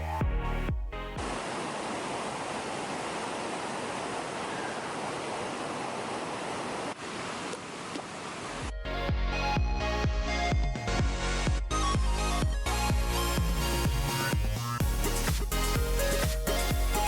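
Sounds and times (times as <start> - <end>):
electronic music: 0.0 - 1.4, 8.7 - 17.0
waterfall rushing: 1.2 - 8.7.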